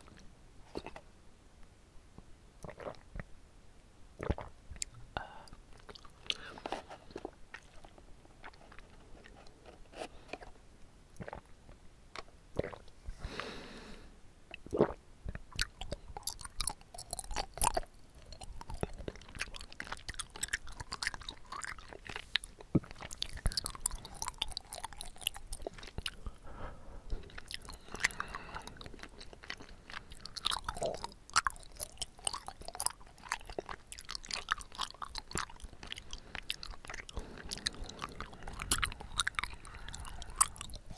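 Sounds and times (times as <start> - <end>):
chewing with mouth clicks: 4.2 - 10.6, 14.5 - 26.4, 27.1 - 40.9.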